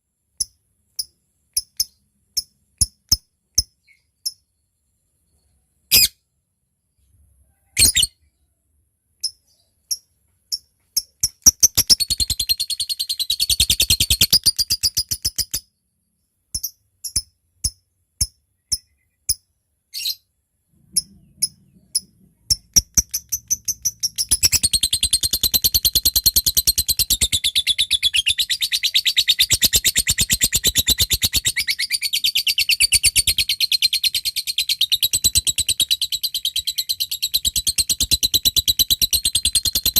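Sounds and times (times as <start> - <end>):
lovebird chirps: 0.4 - 6.2, 7.5 - 8.3, 9.2 - 39.9
lovebird chattering trill: 10.5 - 15.6, 21.0 - 39.9.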